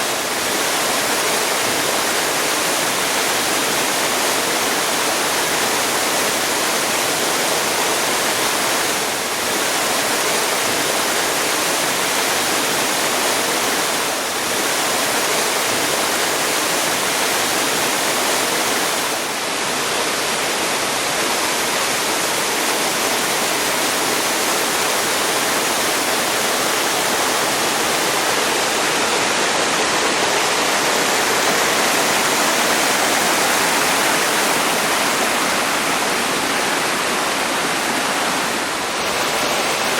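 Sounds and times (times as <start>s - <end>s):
waterfall rushing and splashing: 0.0s - 39.9s.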